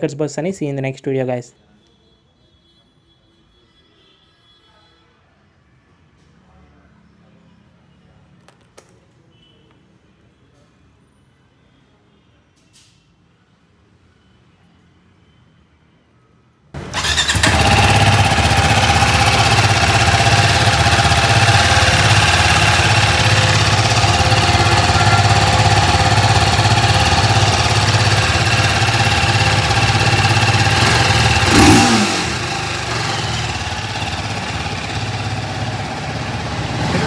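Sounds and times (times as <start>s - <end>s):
motorcycle engine idling: 16.8s - 37.0s.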